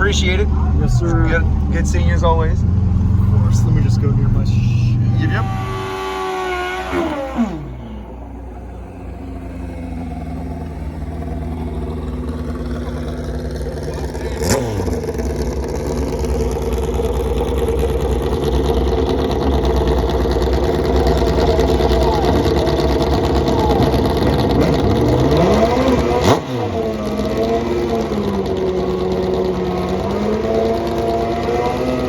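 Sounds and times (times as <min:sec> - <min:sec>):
car engine droning: 0:00.0 - 0:32.0.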